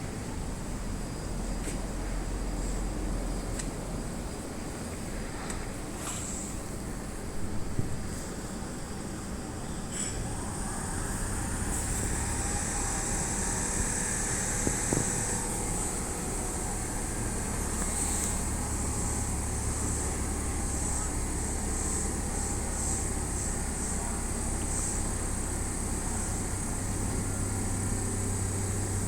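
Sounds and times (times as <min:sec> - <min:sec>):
electric train running: 0:10.3 - 0:29.0.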